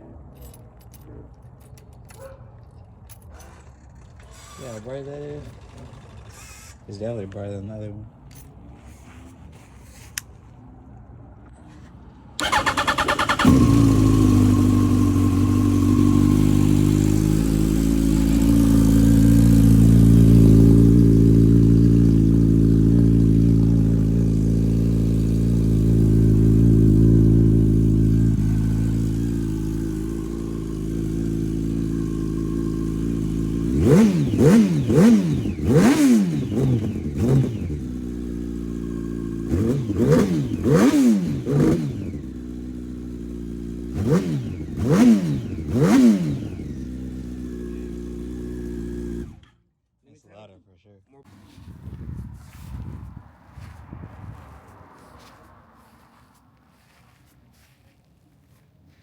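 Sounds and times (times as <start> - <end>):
motorcycle engine starter cranking: 3.4 - 6.9, 12.4 - 17.0
motorcycle engine idling: 12.4 - 49.5
engine revving in quick blips: 12.4 - 49.6.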